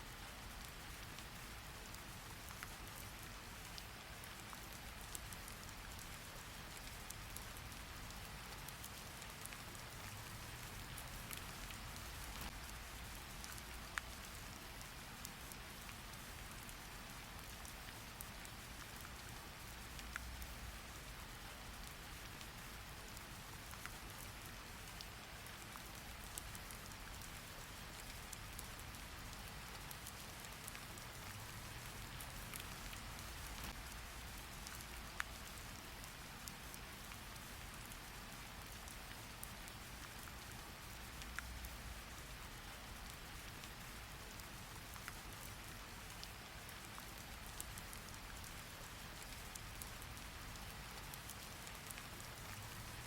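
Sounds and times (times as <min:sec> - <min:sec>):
rain drop ticks: 0:00.1 - 0:53.0
rain hissing: 0:28.4 - 0:36.0.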